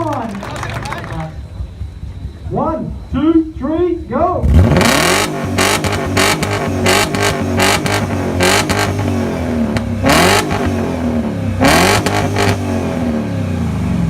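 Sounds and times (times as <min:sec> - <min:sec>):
car engine revving: 0:04.4 - 0:14.0.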